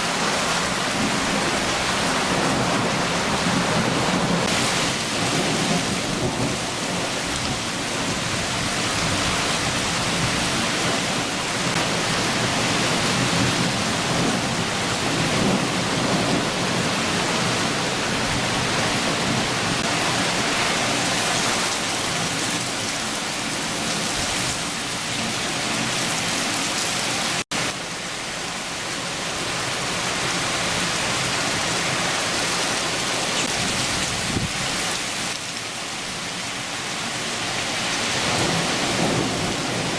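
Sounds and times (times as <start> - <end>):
heavy rain falling: 0.0 - 39.9
low thunder rumbling: 0.1 - 22.7, 38.2 - 39.9.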